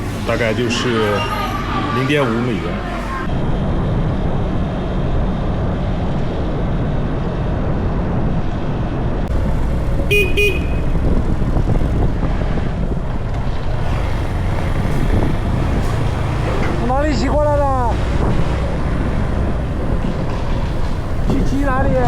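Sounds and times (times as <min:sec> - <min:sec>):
motorcycle road and wind rumble: 0:03.2 - 0:22.0
vehicle horn beeping: 0:10.0 - 0:11.1.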